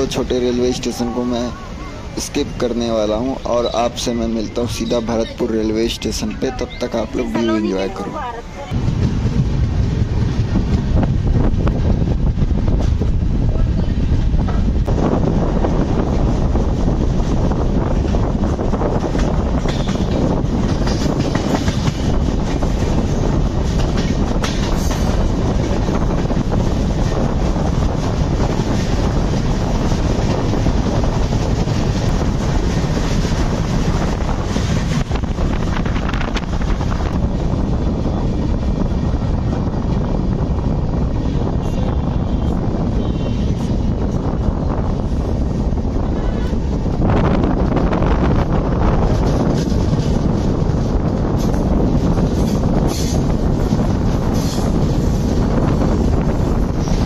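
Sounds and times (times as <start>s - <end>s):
train wheels rumbling on rails: 0.0s - 57.0s
wind on microphone: 5.7s - 57.0s
clickety-clack of wheels: 17.9s - 37.2s, 49.0s - 57.0s.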